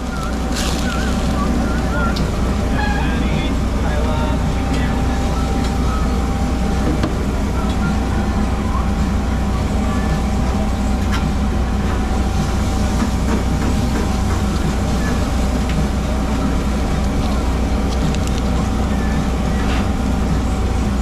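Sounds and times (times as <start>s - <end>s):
constant whining tone: 0.0s - 21.0s
engine droning: 0.0s - 21.0s.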